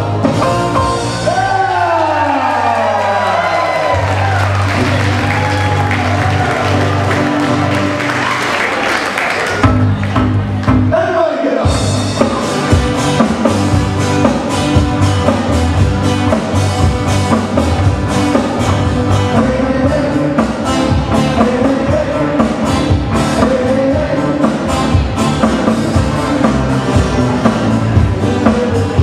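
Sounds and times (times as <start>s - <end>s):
hawaiian music live band: 0.0s - 8.8s, 11.6s - 29.0s
electric guitar: 0.0s - 10.9s, 11.7s - 29.0s
drum kit beat: 11.6s - 29.0s.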